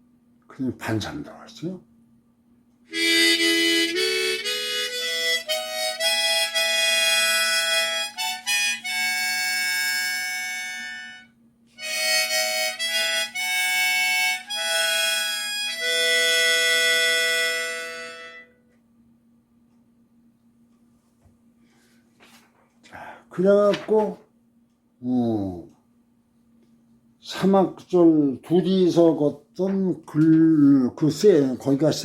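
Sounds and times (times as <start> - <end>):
harmonica playing: 2.9 - 18.7.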